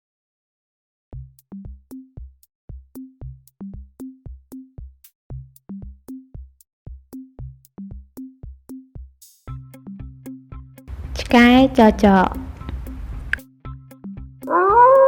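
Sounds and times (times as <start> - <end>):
drum-machine beat: 10.9 - 13.4.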